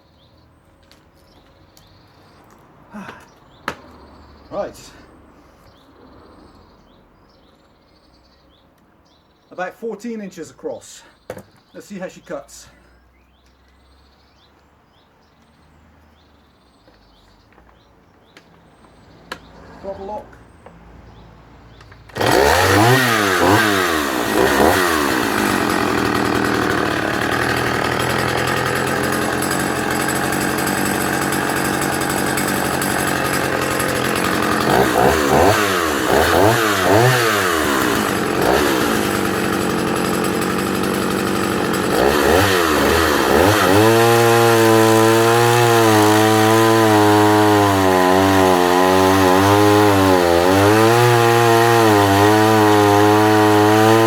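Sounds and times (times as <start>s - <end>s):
chainsaw cutting log: 21.8s - 54.0s
chainsaw revving: 21.8s - 54.0s.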